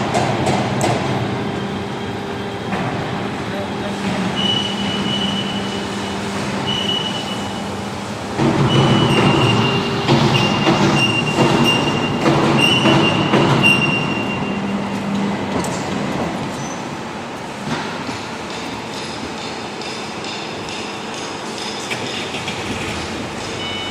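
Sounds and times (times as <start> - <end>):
bending machine humming: 0.0 - 23.9.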